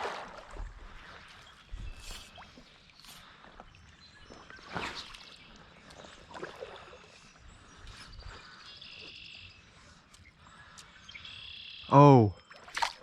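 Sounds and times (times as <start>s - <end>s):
water splash: 0.0s - 1.2s, 12.6s - 13.0s
birds chirping: 1.0s - 12.6s.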